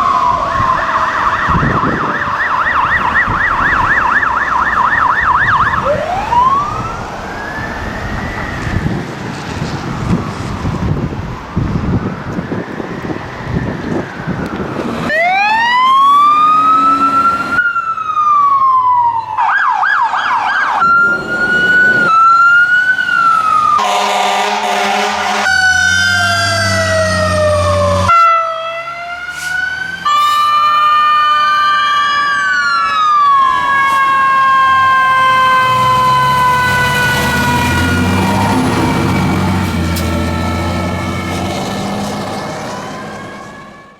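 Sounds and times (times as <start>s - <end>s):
fire truck sirens wailing: 0.0s - 43.9s
siren yelp: 0.0s - 43.9s
diesel truck engine droning: 20.4s - 43.9s
air horn blast: 23.8s - 25.8s.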